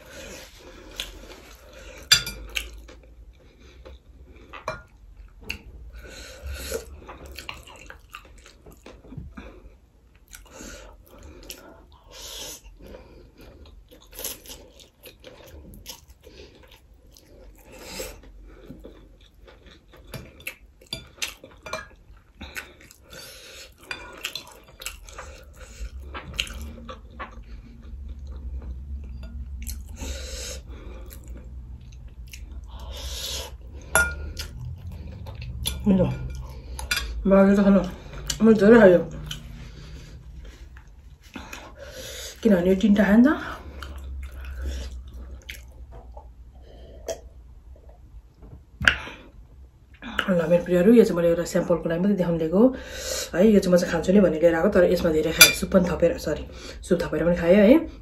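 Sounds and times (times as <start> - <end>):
wet chewing: 12.8 - 30.0, 43.6 - 46.4.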